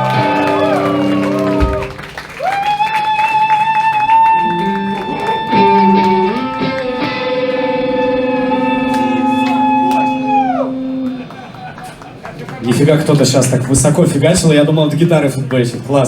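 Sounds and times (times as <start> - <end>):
electric guitars playing: 0.0 - 2.4, 4.0 - 12.3.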